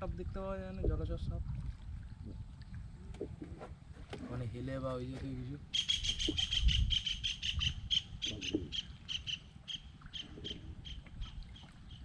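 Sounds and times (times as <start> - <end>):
bird calling high repeated notes: 5.7 - 12.0.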